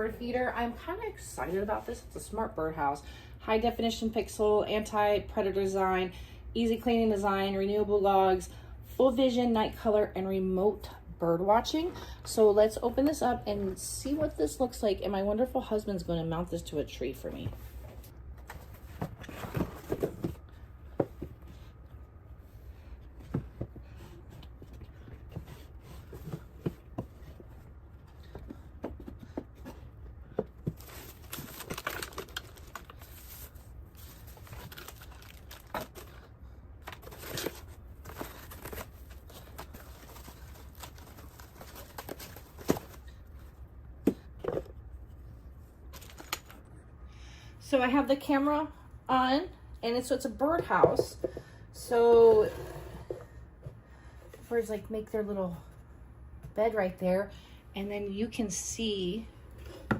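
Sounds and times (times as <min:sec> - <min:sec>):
packaging crinkling and tearing: 0:30.8 - 0:43.0.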